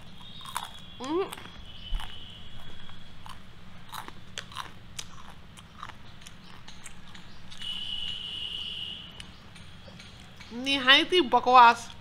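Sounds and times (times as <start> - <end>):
crunchy snack being chewed: 0.0 - 7.8.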